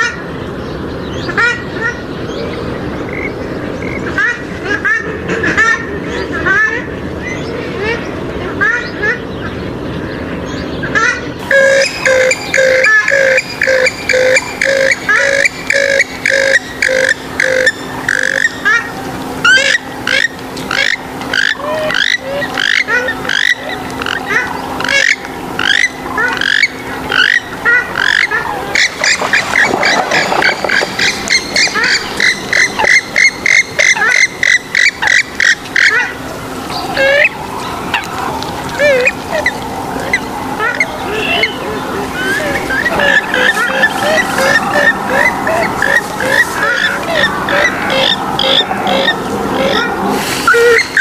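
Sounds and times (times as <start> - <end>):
faint steady hum: 0.0 - 51.0
waterbird calls: 10.8 - 51.0.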